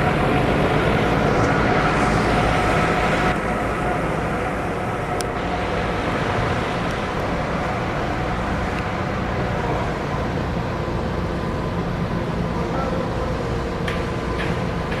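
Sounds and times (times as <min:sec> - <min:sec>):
machinery drone: 0:00.0 - 0:15.0.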